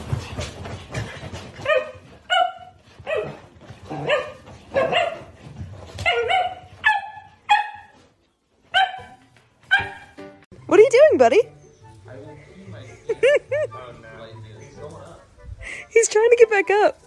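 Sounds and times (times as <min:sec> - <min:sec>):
small dog yipping: 0:06.0 - 0:08.0, 0:08.8 - 0:10.1.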